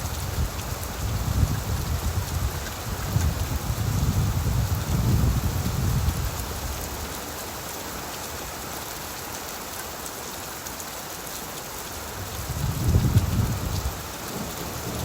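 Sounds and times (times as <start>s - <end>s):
low rumble of thunder: 0.0s - 6.4s, 12.2s - 15.0s
rain falling on leaves: 0.0s - 15.0s.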